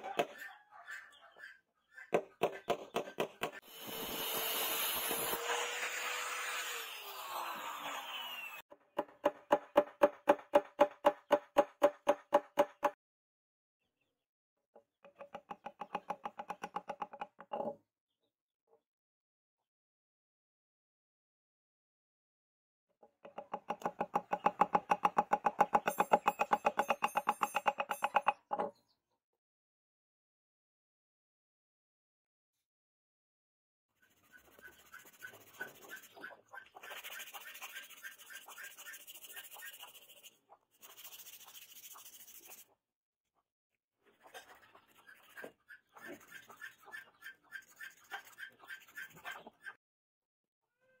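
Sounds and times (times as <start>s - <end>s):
small power tool whirring: 3.6s - 8.6s.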